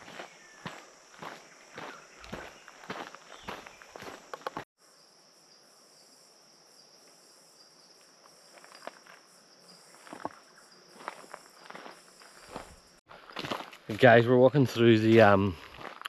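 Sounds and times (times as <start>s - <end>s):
footsteps on trail: 0.0s - 4.7s, 8.4s - 16.0s
insects chorus: 0.0s - 16.0s.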